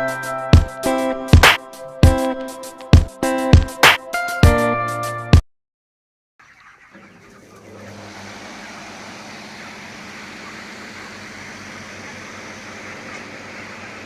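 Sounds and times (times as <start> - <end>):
low motor hum: 6.9 - 14.0
cooling fan rushing air: 7.4 - 14.0.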